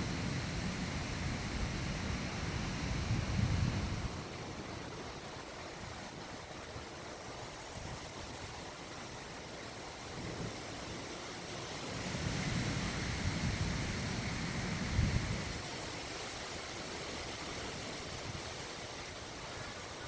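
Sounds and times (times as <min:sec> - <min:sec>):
wind buffeting microphone: 0:00.0 - 0:06.9, 0:12.0 - 0:16.0
steady outdoor hiss: 0:00.0 - 0:20.0.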